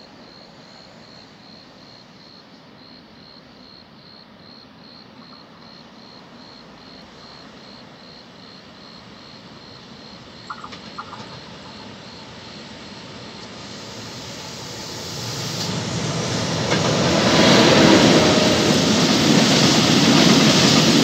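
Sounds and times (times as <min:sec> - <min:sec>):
crickets chirping: 0:00.0 - 0:21.0
distant train rumble: 0:04.8 - 0:21.0.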